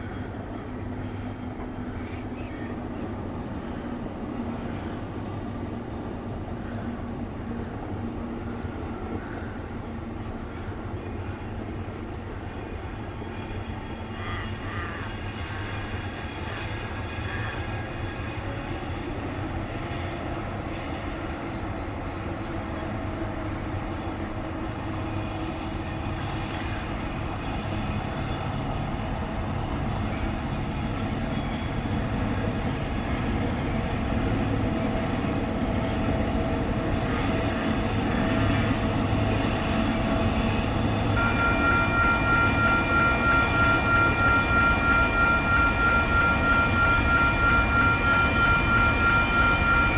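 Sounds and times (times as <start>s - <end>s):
diesel locomotive rumble: 0.0s - 49.9s
thin high steady tone: 22.4s - 49.9s.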